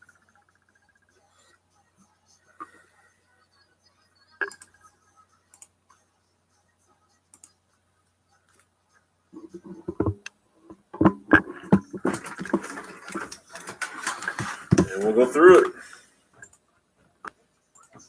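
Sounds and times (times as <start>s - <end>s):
computer mouse clicks: 4.4s - 4.8s, 7.3s - 7.5s, 16.4s - 16.6s.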